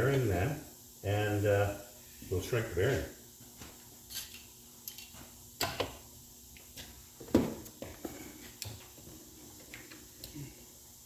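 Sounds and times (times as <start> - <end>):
tools and metal parts clinking: 4.1 - 5.8.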